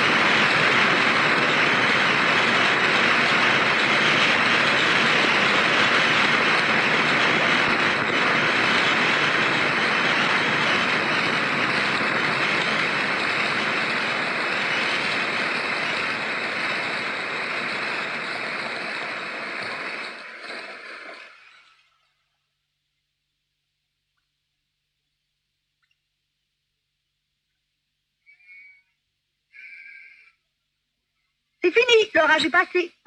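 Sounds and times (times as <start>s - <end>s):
heavy rain pouring: 0.0s - 21.6s.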